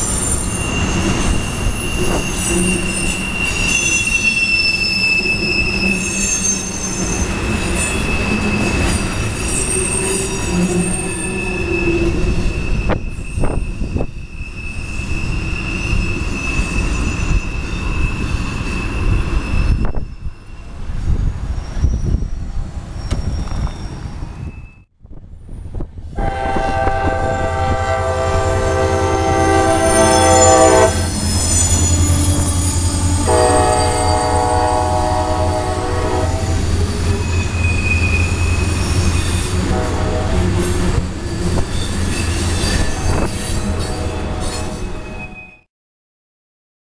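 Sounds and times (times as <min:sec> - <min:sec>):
train wheels squealing: 0:00.0 - 0:24.9, 0:28.7 - 0:35.0, 0:36.2 - 0:39.7, 0:40.6 - 0:45.7
train rumble: 0:00.0 - 0:45.2
locomotive horn blasts: 0:26.2 - 0:31.2, 0:33.2 - 0:36.7, 0:39.6 - 0:40.6, 0:43.6 - 0:44.8.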